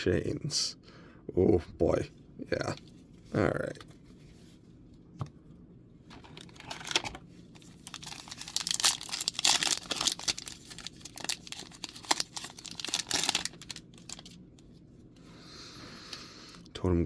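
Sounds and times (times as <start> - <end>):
plastic wrapper torn and crumpled: 6.2 - 14.4.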